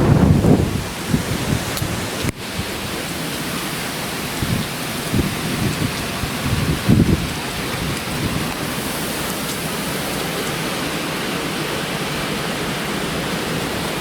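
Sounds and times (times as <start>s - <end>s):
wind buffeting microphone: 0.0s - 3.1s, 4.1s - 10.2s
strong wind and driving rain: 0.0s - 14.0s.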